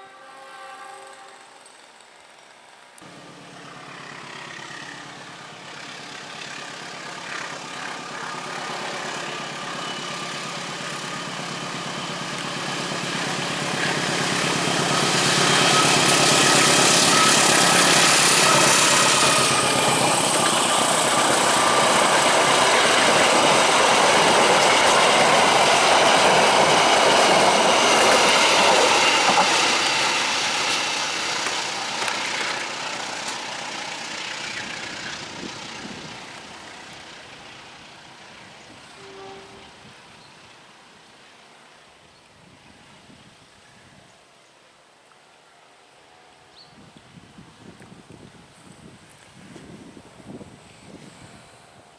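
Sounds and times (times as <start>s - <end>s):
train passing: 0.0s - 43.4s, 45.0s - 51.9s.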